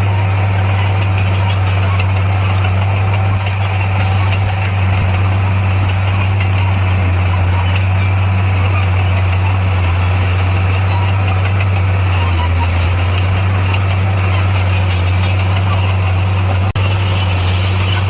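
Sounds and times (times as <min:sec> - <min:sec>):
diesel engine low drone: 0:00.0 - 0:18.0.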